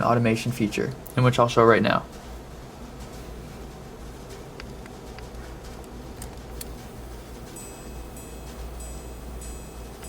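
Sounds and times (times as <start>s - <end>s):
background hum: 0.0s - 10.0s
faint mechanical whirring: 0.0s - 10.0s.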